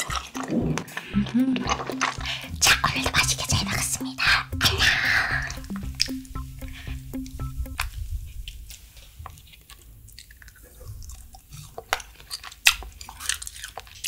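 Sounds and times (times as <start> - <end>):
candy crunching while chewing: 0.0 - 3.7, 9.3 - 14.0.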